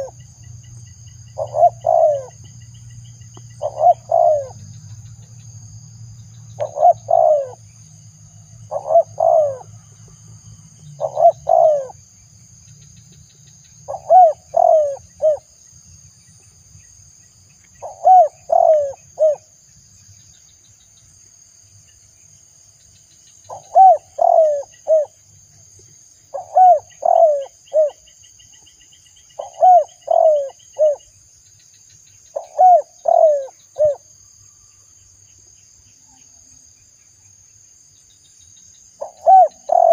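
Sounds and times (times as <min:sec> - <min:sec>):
high insect trill: 0:00.0 - 0:39.9
dove cooing: 0:01.4 - 0:02.5, 0:03.6 - 0:04.6, 0:06.6 - 0:07.6, 0:08.7 - 0:09.7, 0:11.0 - 0:12.0, 0:13.9 - 0:15.5, 0:17.8 - 0:19.5, 0:23.5 - 0:25.2, 0:26.3 - 0:28.0, 0:29.4 - 0:31.0, 0:32.4 - 0:34.0, 0:39.0 - 0:39.9.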